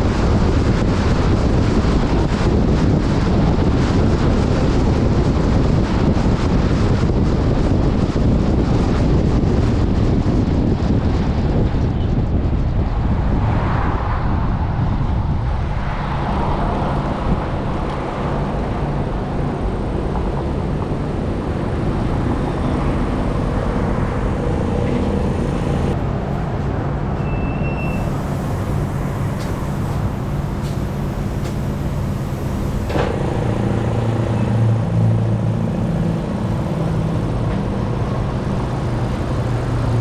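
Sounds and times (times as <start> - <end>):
wind rushing over microphone: 0.0 - 40.0
off-road vehicle engine running: 17.0 - 26.1, 28.0 - 40.0.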